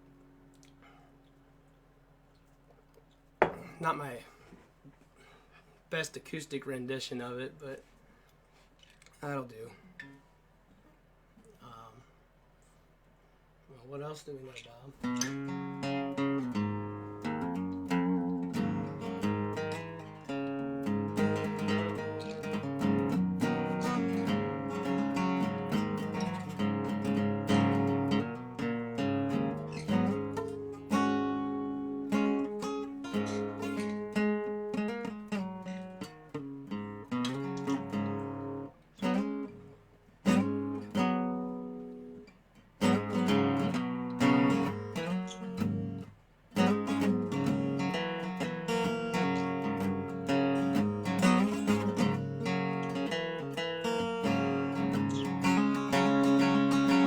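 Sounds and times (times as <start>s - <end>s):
resonator guitar playing: 15.0s - 42.2s, 42.8s - 57.0s.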